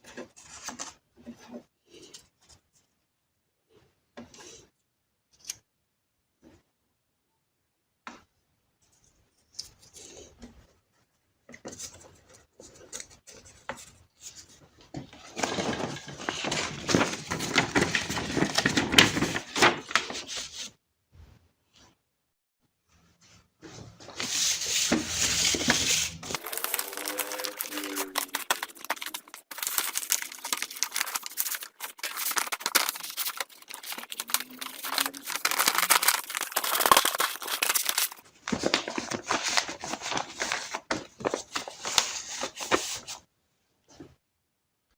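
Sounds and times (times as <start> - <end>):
crinkling and rustling: 8.8 - 20.7, 23.0 - 43.2.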